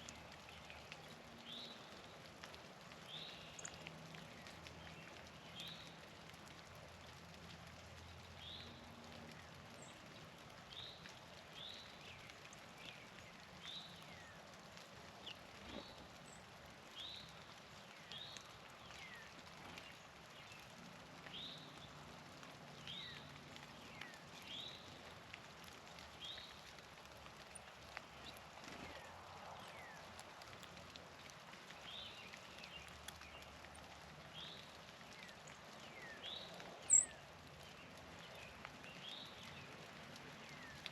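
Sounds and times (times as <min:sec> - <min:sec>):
faint songbird calls: 0:34.4 - 0:39.6.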